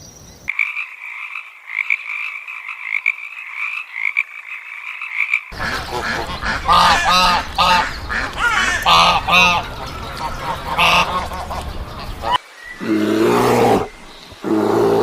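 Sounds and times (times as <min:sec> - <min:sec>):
frogs croaking: 0:00.5 - 0:15.0
geese honking: 0:05.5 - 0:12.4.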